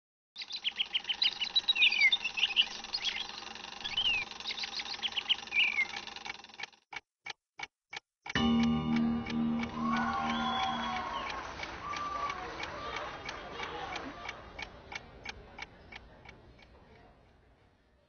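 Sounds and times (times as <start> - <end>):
birds chirping and twittering: 0.4 - 6.3
ticking: 2.2 - 12.0
music: 8.4 - 11.8.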